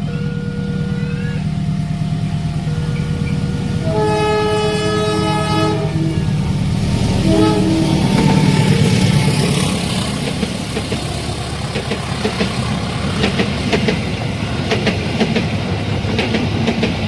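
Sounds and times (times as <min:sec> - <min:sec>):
train horn blast: 0:00.0 - 0:09.9
low engine rumble: 0:00.0 - 0:17.0.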